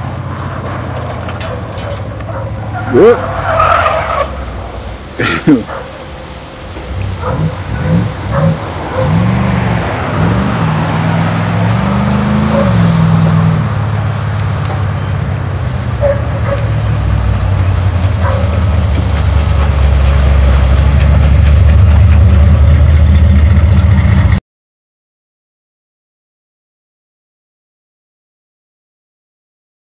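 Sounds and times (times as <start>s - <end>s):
car engine revving hard: 7.0s - 14.1s.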